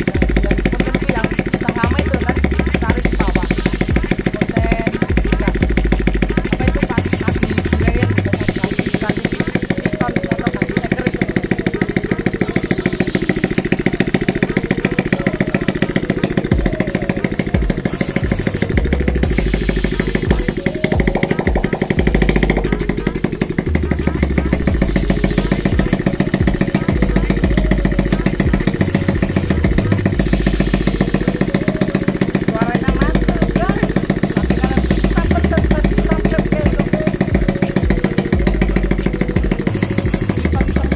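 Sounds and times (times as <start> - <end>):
motorcycle engine popping at idle: 0.0 - 40.9.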